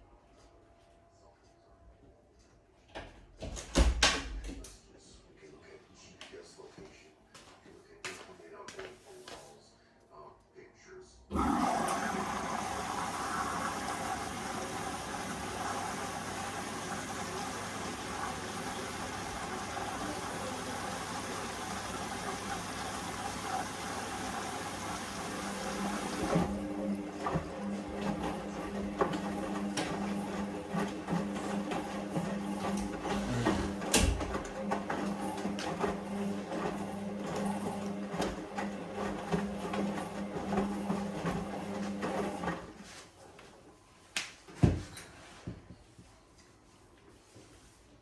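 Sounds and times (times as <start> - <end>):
washing machine running: 11.3 - 43.0.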